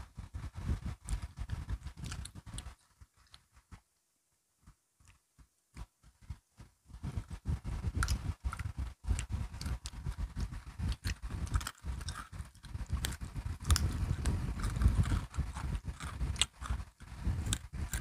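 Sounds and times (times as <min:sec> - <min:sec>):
crunching biscuit sticks: 0:00.9 - 0:03.6, 0:07.3 - 0:18.0
mouth clicks: 0:07.7 - 0:18.0.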